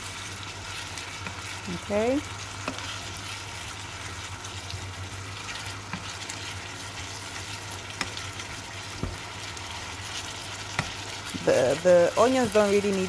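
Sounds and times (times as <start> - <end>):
meat and onion sizzling: 0.0 - 13.0
wooden spoon knocking on pot: 9.0 - 9.2.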